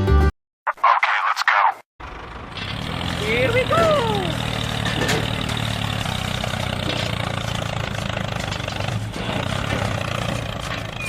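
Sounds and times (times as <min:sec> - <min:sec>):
tractor engine idling: 0:02.0 - 0:11.0.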